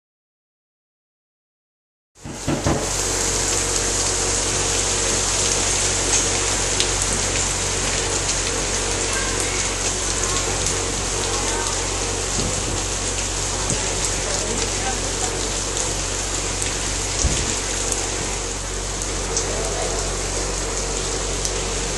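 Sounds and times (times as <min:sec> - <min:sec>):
heavy rain falling: 0:02.2 - 0:21.9
steady low hum: 0:02.2 - 0:21.9.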